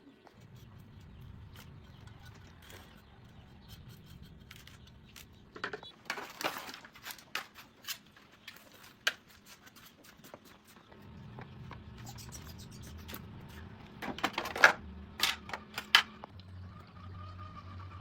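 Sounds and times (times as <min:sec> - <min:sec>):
metal tools clicking and scraping: 0:00.4 - 0:10.9.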